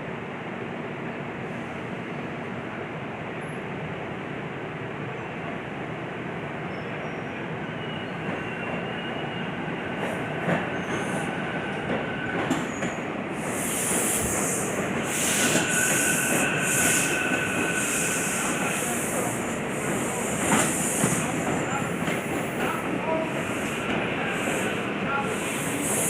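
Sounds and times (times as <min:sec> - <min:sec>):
train wheels squealing: 0:06.6 - 0:26.0
pulsing high-pitched hissing: 0:13.4 - 0:22.0, 0:23.2 - 0:26.0.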